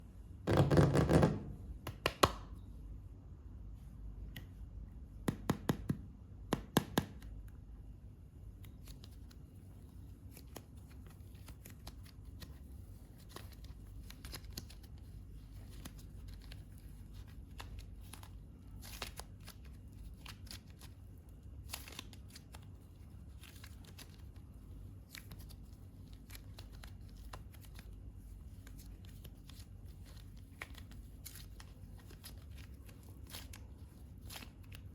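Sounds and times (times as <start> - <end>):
hands working modelling clay: 3.4 - 34.9.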